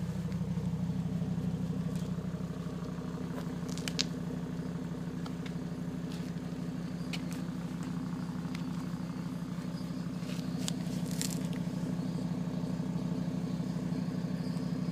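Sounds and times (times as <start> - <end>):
car engine idling: 0.0 - 14.9
light engine ticks: 0.0 - 14.9.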